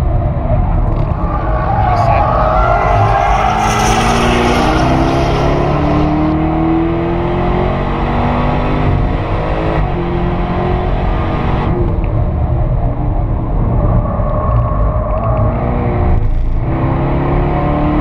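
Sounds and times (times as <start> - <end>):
car engine revving: 0.0 - 18.0
car passing by: 0.4 - 6.5.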